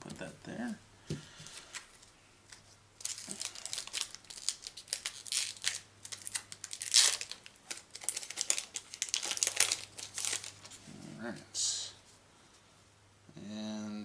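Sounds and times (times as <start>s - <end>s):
foil wrapper crinkling and tearing: 3.0s - 10.8s.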